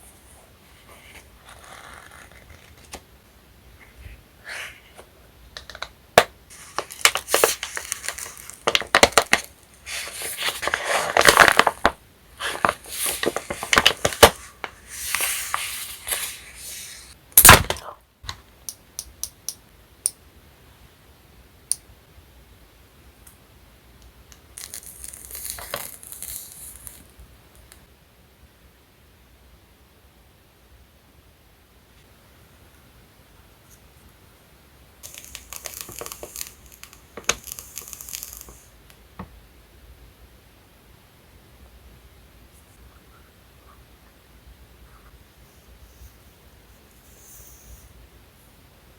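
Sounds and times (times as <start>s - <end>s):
packaging rustling and crinkling: 6.5s - 17.7s, 35.0s - 38.6s.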